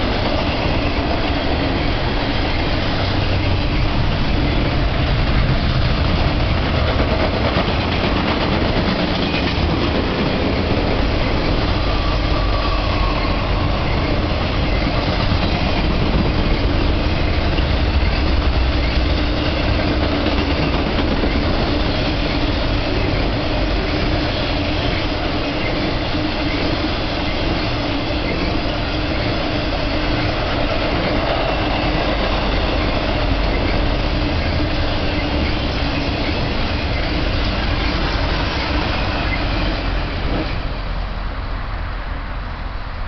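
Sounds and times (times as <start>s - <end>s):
freight train wheels on track: 0.0s - 43.0s.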